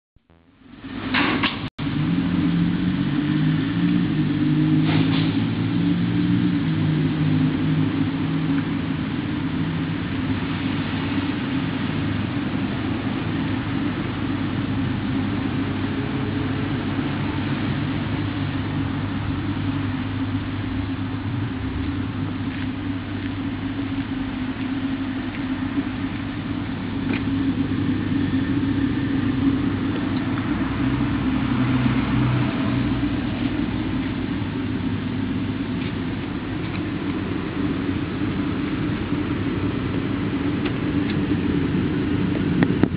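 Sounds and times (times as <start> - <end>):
car engine idling: 1.8 - 42.9.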